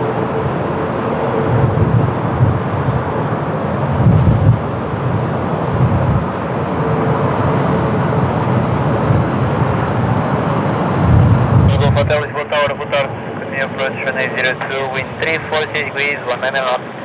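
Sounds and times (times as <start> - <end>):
wind buffeting microphone: 0.0 - 12.3
jet aircraft engine noise: 0.0 - 17.0.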